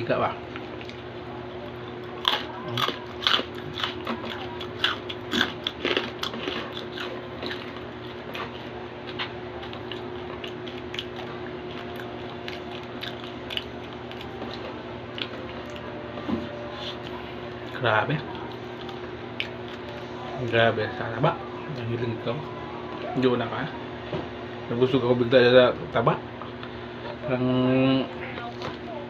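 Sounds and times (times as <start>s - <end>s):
crunchy chewing: 0.5s - 20.6s.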